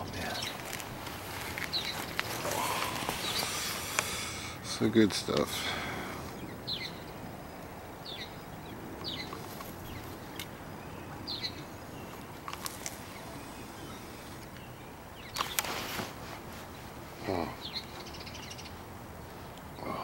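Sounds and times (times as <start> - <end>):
birds chirping: 0.0 - 20.0
outdoor background hiss: 0.0 - 20.0
sharp clicks: 15.3 - 15.7.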